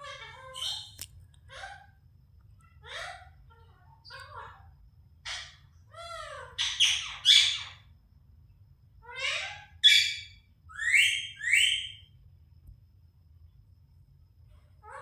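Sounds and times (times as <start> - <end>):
parrot squawking and screeching: 0.0 - 1.9, 2.6 - 7.9, 9.0 - 12.0.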